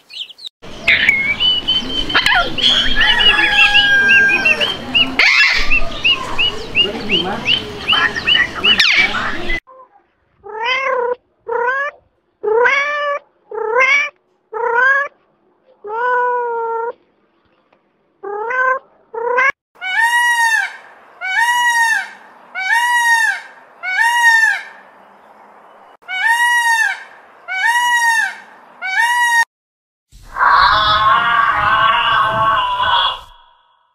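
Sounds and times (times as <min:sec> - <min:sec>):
peacock calling: 0:00.0 - 0:09.6, 0:18.2 - 0:25.3, 0:26.0 - 0:29.5, 0:30.2 - 0:33.8
cat meowing: 0:10.4 - 0:15.1, 0:18.2 - 0:19.6.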